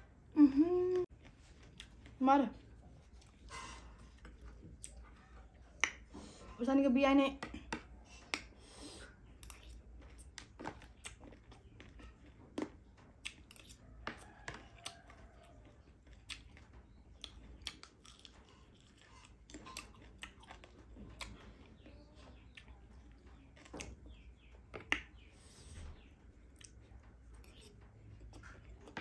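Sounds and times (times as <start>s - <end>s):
person chewing: 0.7s - 6.1s, 7.6s - 21.8s, 26.5s - 29.0s
crunches of food: 7.9s - 29.0s.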